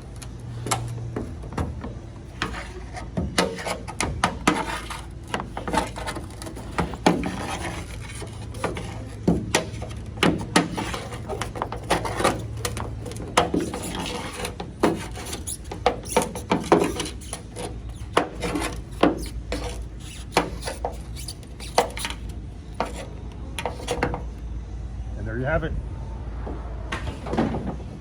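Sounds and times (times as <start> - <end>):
plastic cap clicking and scraping: 2.4 - 24.3.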